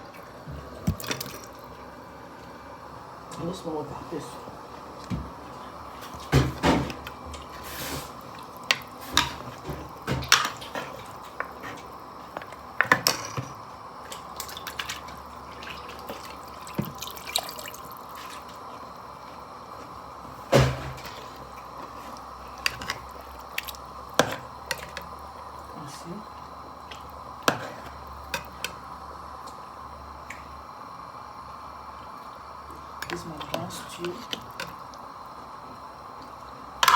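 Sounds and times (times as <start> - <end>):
drips and pops: 14.1 - 18.1.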